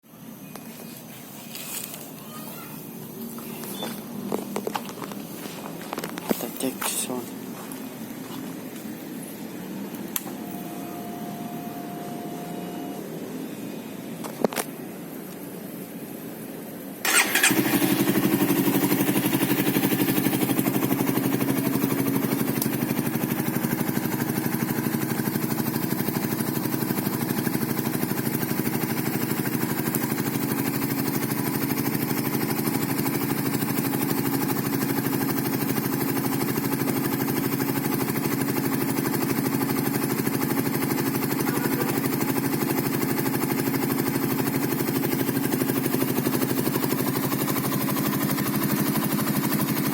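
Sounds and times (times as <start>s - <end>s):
motorcycle engine starting and idling: 3.0s - 13.4s, 17.0s - 49.9s.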